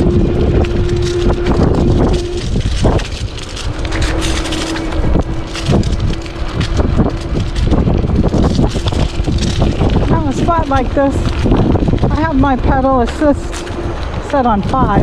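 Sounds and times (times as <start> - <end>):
electric motor hum: 0.0 - 10.1
bike rattling over bumps: 0.0 - 15.0
wind buffeting microphone: 0.0 - 15.0.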